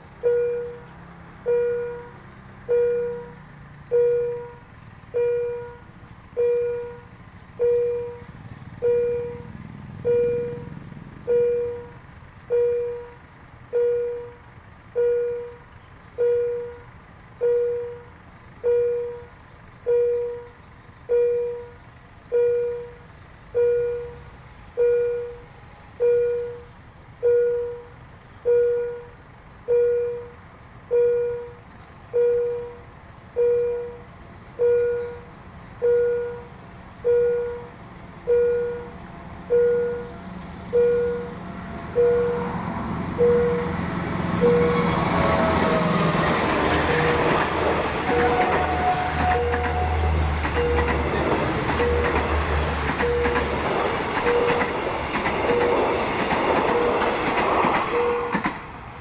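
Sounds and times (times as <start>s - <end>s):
level crossing warning bell: 0.0s - 45.8s, 46.9s - 58.4s.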